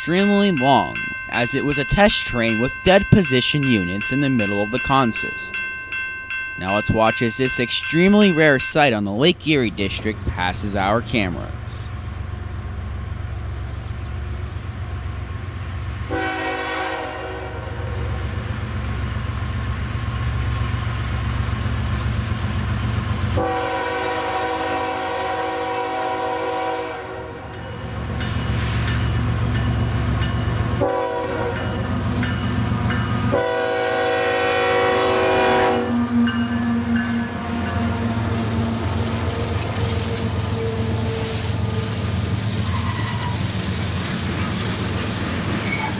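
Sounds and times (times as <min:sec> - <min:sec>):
locomotive rumble: 0:00.0 - 0:45.9
locomotive horn blasts: 0:16.1 - 0:18.2, 0:23.3 - 0:27.5, 0:30.8 - 0:31.9, 0:33.2 - 0:38.9.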